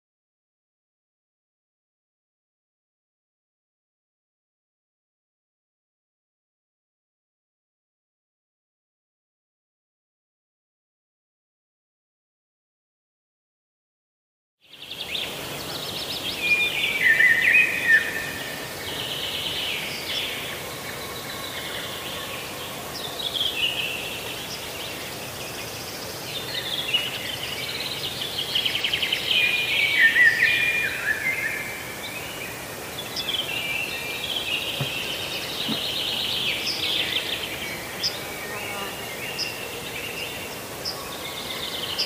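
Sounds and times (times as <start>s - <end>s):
birds singing and chirping: 14.7s - 42.0s.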